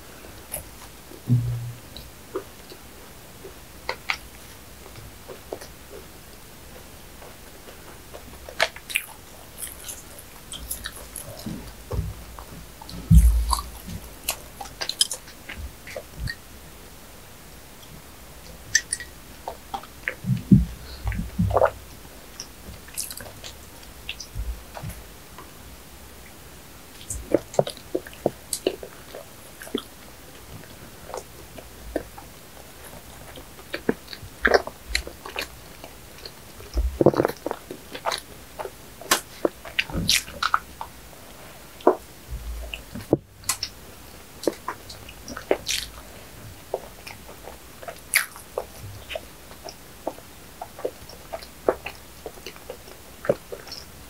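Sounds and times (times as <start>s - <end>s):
mouth clicks and crackles: 0.2s - 16.5s, 17.6s - 25.5s, 26.2s - 54.0s
biting and chewing bread: 6.7s - 16.4s, 18.7s - 25.0s, 42.7s - 54.0s.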